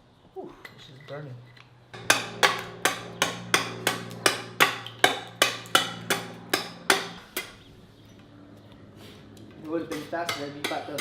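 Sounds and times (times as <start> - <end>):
hammer striking wood: 2.0 - 7.6, 10.0 - 11.0.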